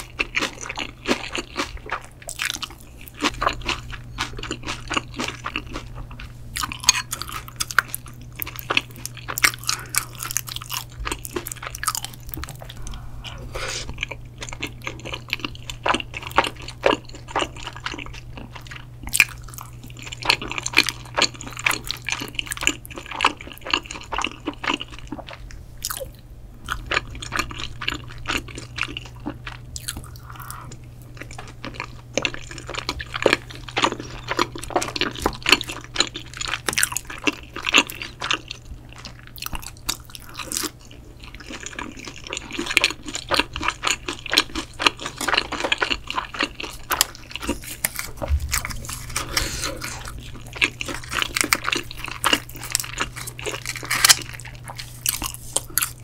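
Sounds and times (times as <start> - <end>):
mouth chewing with wet clicks: 13.9 - 56.0.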